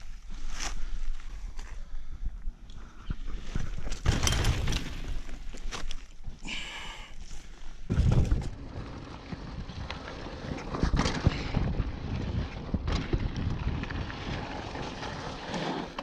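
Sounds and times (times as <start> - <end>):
bike tyres and frame rattling: 3.0 - 16.0
knocks from rough trail: 3.6 - 6.2, 7.8 - 16.0
wind noise on microphone: 7.9 - 15.0.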